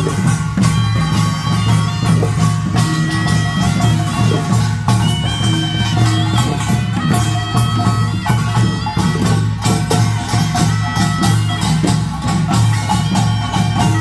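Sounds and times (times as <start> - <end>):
gongs and drums beating: 0.0 - 14.0
reedy wind melody: 0.0 - 14.0.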